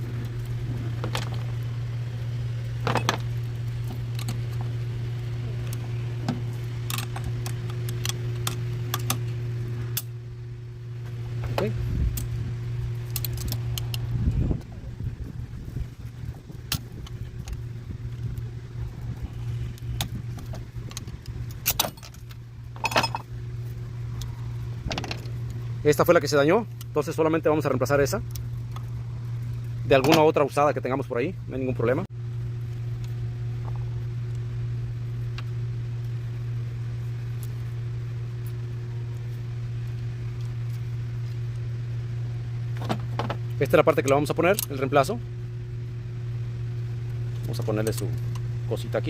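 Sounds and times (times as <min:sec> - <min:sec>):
steady low hum: 0:00.0 - 0:49.0
metal parts clinking: 0:21.6 - 0:23.2.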